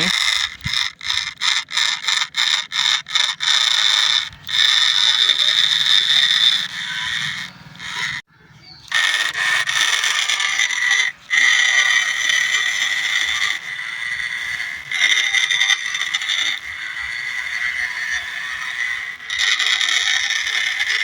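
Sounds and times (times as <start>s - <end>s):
toy electric motor whining: 0.0s - 21.0s.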